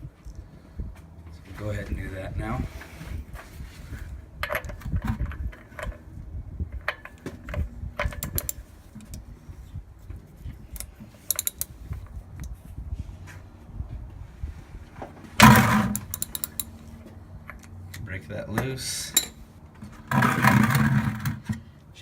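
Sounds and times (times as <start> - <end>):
tight run of clicks: 6.8 - 9.2, 10.7 - 12.5, 15.7 - 16.8
socket and wrench metal clinks: 8.0 - 9.2, 10.7 - 11.8, 15.8 - 16.8, 19.1 - 19.4.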